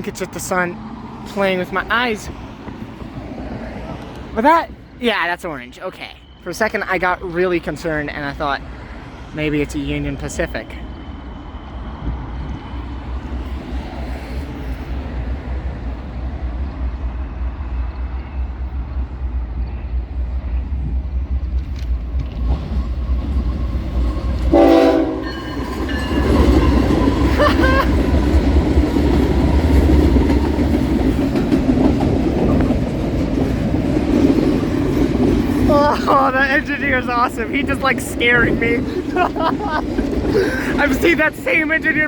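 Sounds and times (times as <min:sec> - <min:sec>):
train rumbling past: 0:00.0 - 0:42.0
wheels rushing on rails: 0:00.0 - 0:42.0
high squealing wheels: 0:09.8 - 0:15.0, 0:21.9 - 0:33.0
train horn blast: 0:24.5 - 0:25.8.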